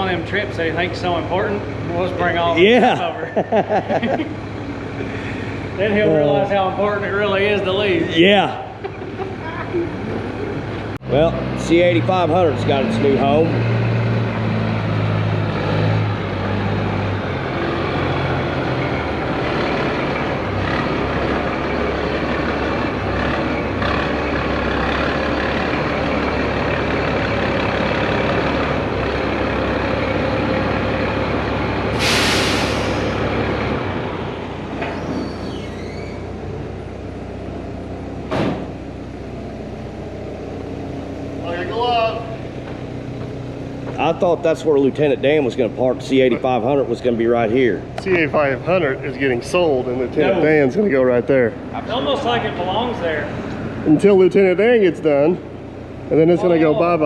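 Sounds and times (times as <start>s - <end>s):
truck engine idling: 0.0s - 11.0s, 16.0s - 57.0s
air brakes hissing: 4.9s - 5.8s, 31.9s - 33.6s, 34.8s - 36.3s
sharp knock: 38.3s - 38.7s.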